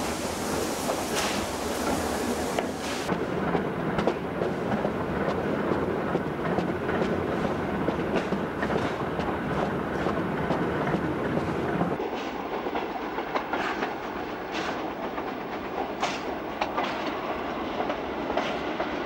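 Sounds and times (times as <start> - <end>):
hiss: 0.0 - 3.1
train rumbling on track: 0.0 - 19.0
wheels clacking over rail joints: 0.8 - 19.0.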